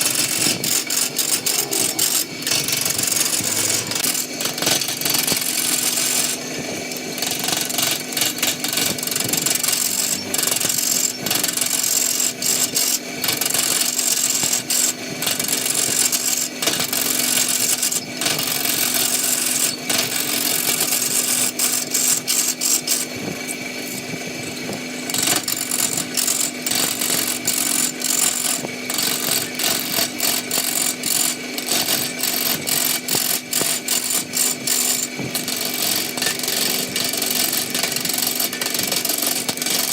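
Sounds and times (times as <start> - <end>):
lathe motor hum: 0.0 - 39.9
tool scraping spinning wood: 0.0 - 39.9.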